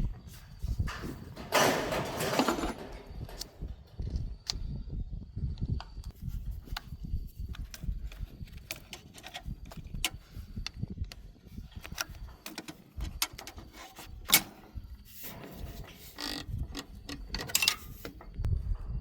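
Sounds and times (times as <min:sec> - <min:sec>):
clicks and knocks: 0:00.9 - 0:03.7.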